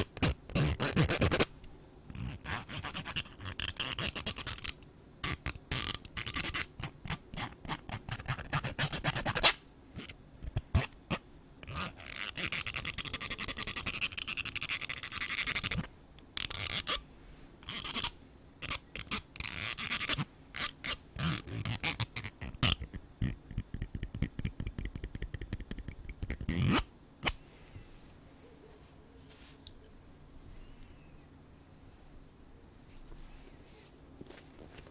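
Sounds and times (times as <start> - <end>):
crickets trilling: 0.0 - 34.9
scratching and brushing strokes: 27.4 - 34.9.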